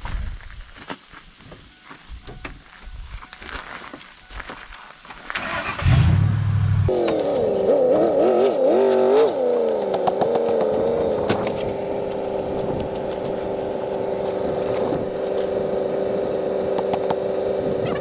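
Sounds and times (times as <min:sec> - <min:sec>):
car engine running on road: 0:05.4 - 0:18.0
low hum: 0:05.8 - 0:07.9.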